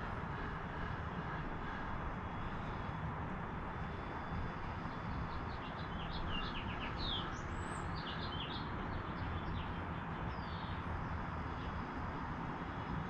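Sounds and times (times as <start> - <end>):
small birds chirping: 3.8 - 12.0.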